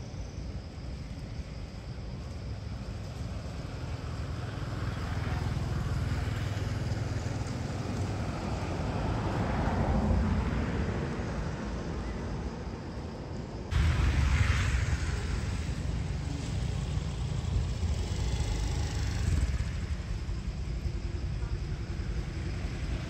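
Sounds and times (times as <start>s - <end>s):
loud rumble: 13.7s - 23.0s
road vehicle passing: 13.7s - 23.0s.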